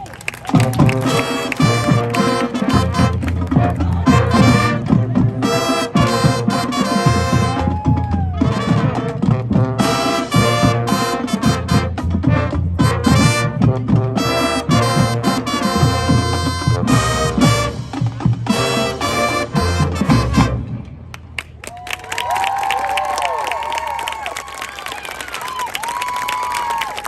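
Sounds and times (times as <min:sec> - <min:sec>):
marching band playing: 0:00.0 - 0:21.6
sliding brass note: 0:00.6 - 0:07.8, 0:08.4 - 0:21.0.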